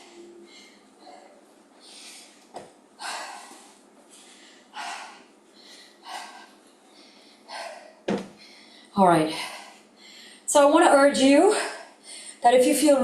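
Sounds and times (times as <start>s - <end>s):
person breathing hard: 0.0s - 2.4s, 3.0s - 10.5s.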